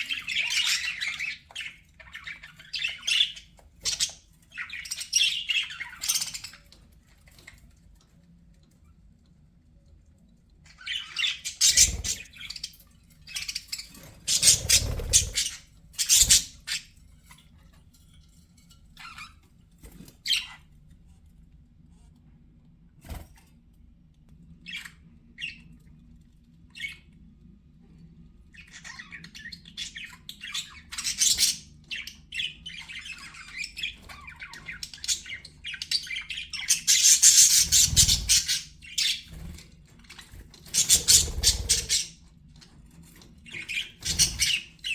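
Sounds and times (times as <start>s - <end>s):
budgerigars chattering and squawking: 0.0s - 7.6s, 10.7s - 17.4s, 19.0s - 20.6s, 26.8s - 27.1s, 28.5s - 44.9s.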